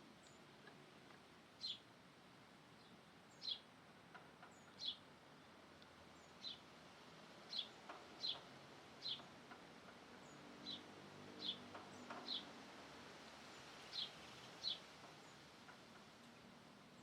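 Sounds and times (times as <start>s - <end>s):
bird chirping: 7.5s - 8.4s, 9.0s - 9.3s.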